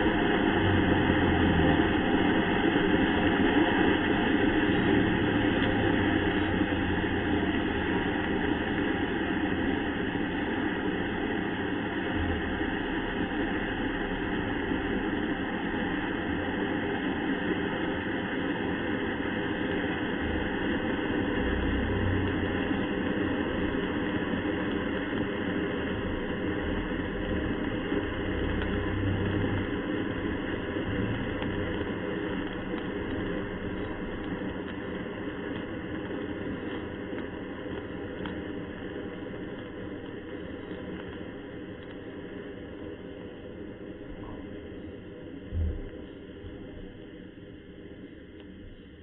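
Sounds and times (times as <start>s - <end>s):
low rumble: 0.0s - 18.3s, 19.0s - 42.0s, 43.8s - 47.7s
rocket motor burning: 0.0s - 49.0s.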